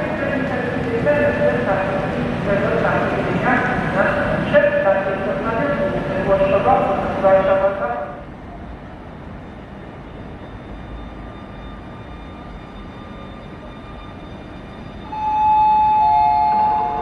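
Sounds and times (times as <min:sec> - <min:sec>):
railway platform rumble: 0:00.0 - 0:17.0
two-note chime: 0:15.1 - 0:17.0.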